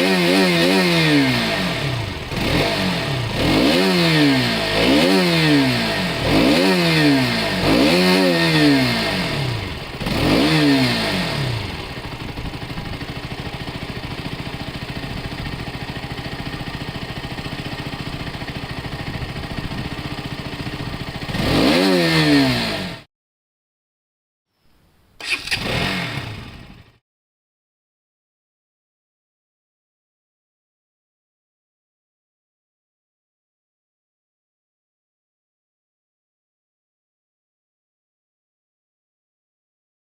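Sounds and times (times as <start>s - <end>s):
motorcycle engine revving and idling: 0.0s - 23.1s, 25.2s - 27.0s.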